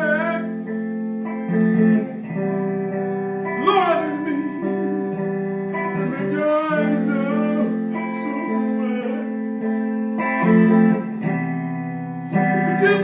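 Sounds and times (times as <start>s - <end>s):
person singing gospel: 0.0s - 0.6s, 3.5s - 9.7s, 12.4s - 13.0s
guitar chords: 0.0s - 13.0s.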